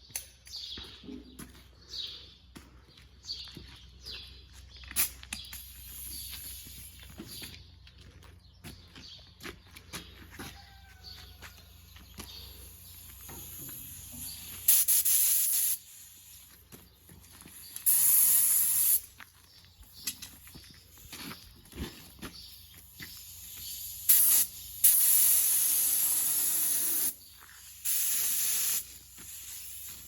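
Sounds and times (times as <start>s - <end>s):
paint spray gun hissing: 12.6s - 16.5s, 17.8s - 19.1s, 23.2s - 30.0s.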